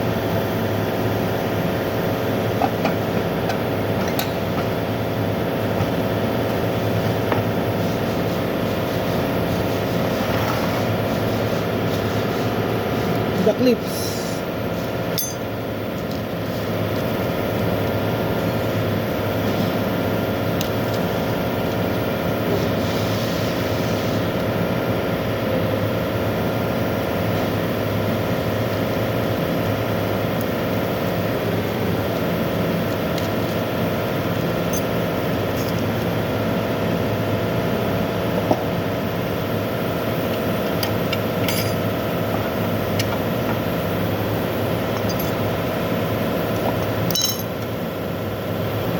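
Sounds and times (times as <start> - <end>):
light metallic clinks: 15.2 - 15.5, 47.1 - 47.5.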